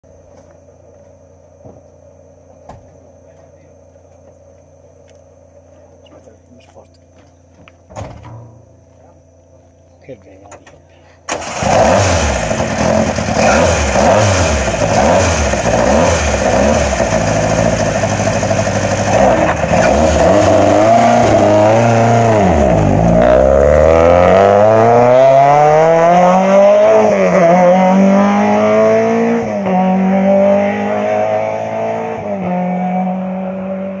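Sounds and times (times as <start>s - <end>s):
car engine revving: 11.3s - 34.0s
car pulling away through gears: 11.3s - 34.0s.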